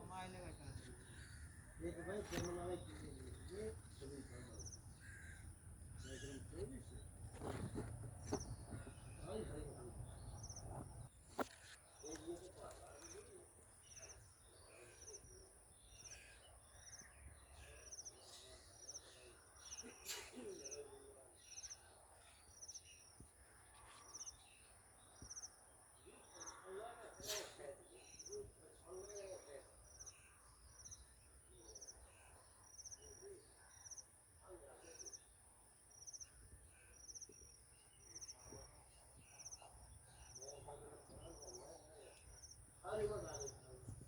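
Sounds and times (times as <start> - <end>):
faint trilled bird calls: 0.0 - 24.6, 25.2 - 35.4.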